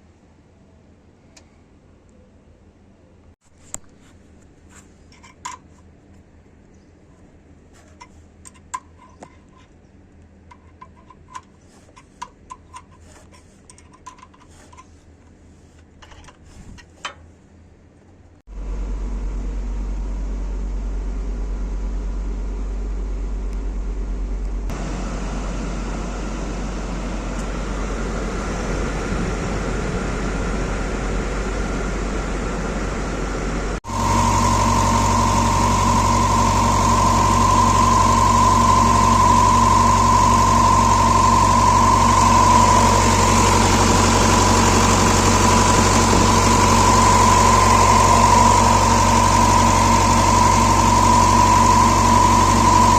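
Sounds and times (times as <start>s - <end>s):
fan noise: 3.5s - 52.9s
bus engine humming: 18.5s - 52.9s.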